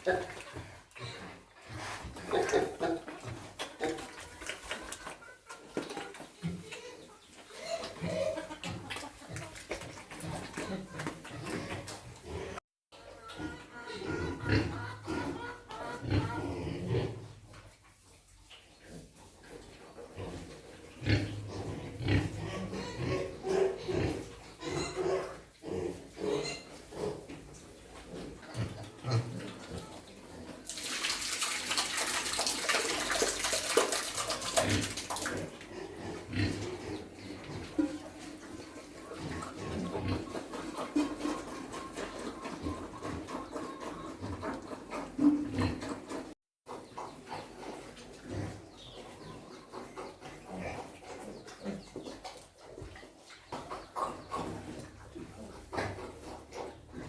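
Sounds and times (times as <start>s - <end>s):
pigs grunting: 0.0s - 5.0s, 6.6s - 12.6s, 13.3s - 17.4s, 19.0s - 30.6s, 32.7s - 53.2s, 53.8s - 57.0s
farm animals calling: 0.0s - 17.6s, 18.9s - 30.6s, 31.4s - 57.0s
water pouring and splashing: 30.4s - 35.8s.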